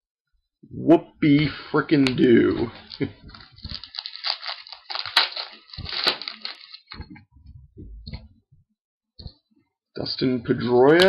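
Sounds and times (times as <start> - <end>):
wrapper tearing and crinkling: 2.8 - 7.0
soft low thumps: 6.9 - 9.4.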